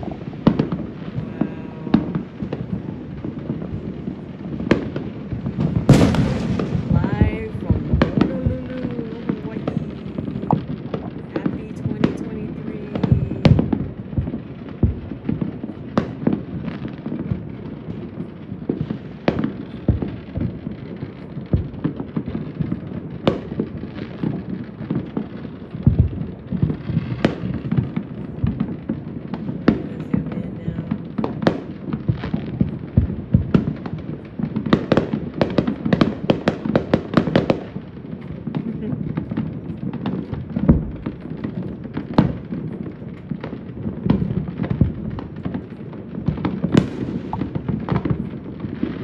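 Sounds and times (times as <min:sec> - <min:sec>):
aerial firework booms: 0:00.0 - 0:37.8, 0:38.5 - 0:49.0
firecrackers popping: 0:00.0 - 0:49.0.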